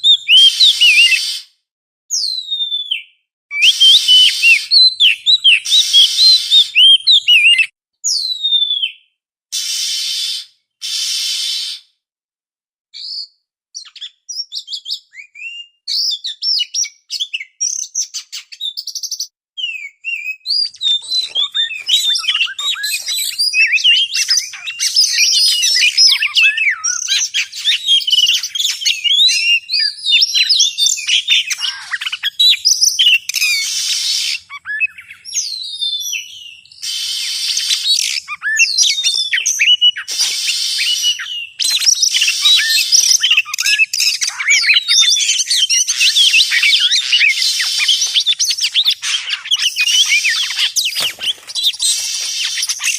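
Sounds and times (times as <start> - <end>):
bird singing whistles: 0.0 - 1.5, 2.1 - 11.9, 13.0 - 52.9
harsh rasping bird notes: 9.6 - 11.8, 20.8 - 29.6, 38.9 - 43.4, 45.9 - 52.9.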